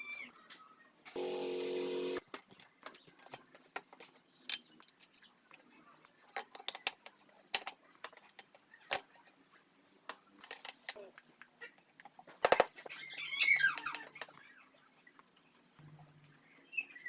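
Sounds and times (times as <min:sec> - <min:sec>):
steady hum: 0:01.2 - 0:02.2.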